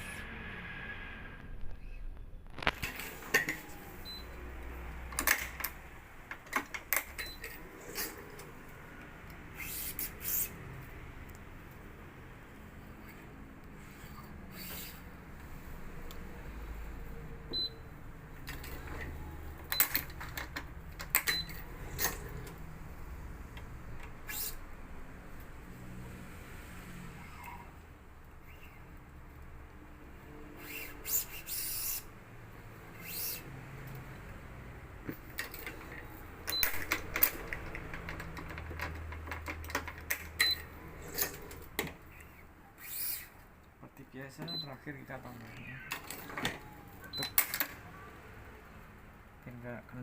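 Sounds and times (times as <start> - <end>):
clamps clicking and tapping: 35.0 - 40.5.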